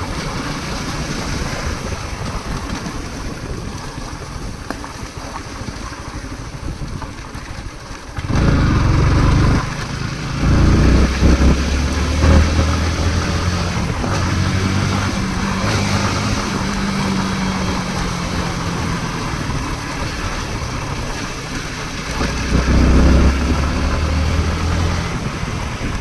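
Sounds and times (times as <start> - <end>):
constant rushing noise: 0.0 - 26.0
engine running: 7.4 - 26.0.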